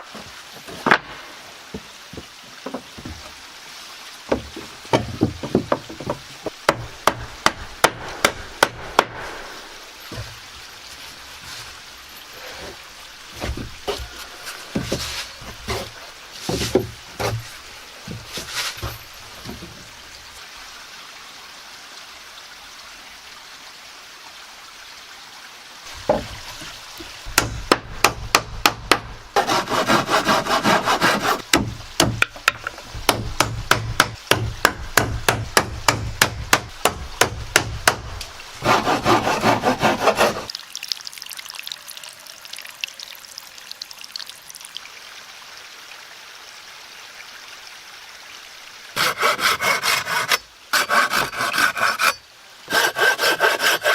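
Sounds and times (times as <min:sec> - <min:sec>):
wood being sawn: 0:13.4 - 0:17.6, 0:28.9 - 0:31.5, 0:37.8 - 0:40.5, 0:49.0 - 0:53.9.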